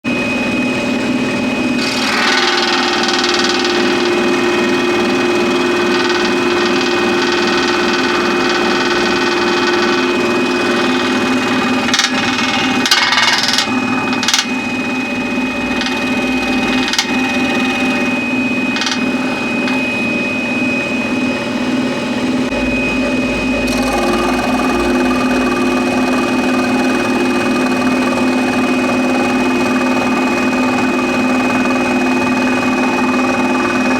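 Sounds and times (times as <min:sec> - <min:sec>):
scroll saw cutting wood: 0:01.8 - 0:14.6, 0:15.6 - 0:18.1, 0:23.7 - 0:25.1.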